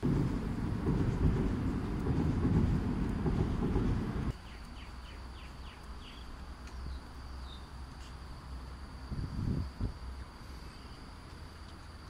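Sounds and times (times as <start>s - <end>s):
low rumbling noise: 0.0s - 4.4s
high insect drone: 0.0s - 12.0s.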